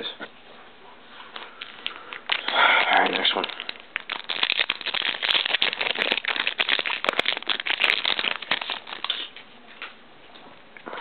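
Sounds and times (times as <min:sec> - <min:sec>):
foil wrapper crinkling and tearing: 0:01.5 - 0:09.4.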